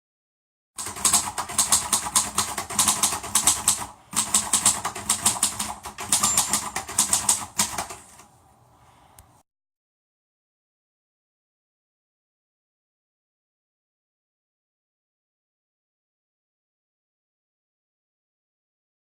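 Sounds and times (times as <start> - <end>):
rapid clicking: 0.8 - 8.3.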